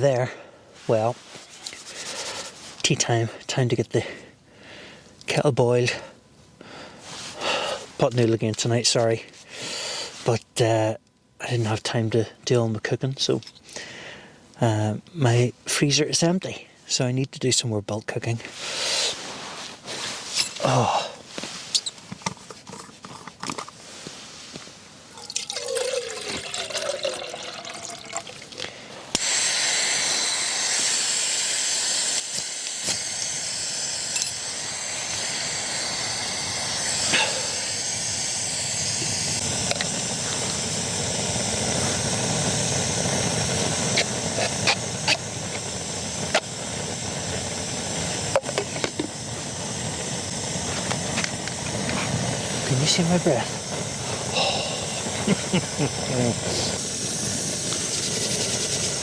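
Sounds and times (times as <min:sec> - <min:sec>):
gas burner hissing: 0:00.0 - 0:03.4, 0:04.0 - 0:10.4, 0:18.4 - 0:22.4, 0:28.6 - 0:59.0
water pouring into cup: 0:25.2 - 0:28.6.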